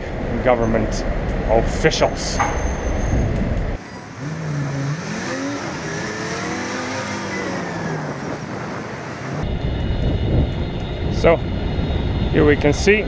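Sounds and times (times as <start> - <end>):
vehicle engine accelerating: 3.4 - 12.3.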